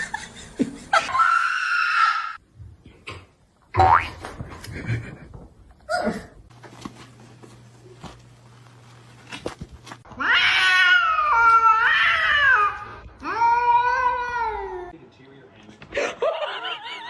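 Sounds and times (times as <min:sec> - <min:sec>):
cat yowling: 0:10.2 - 0:14.9.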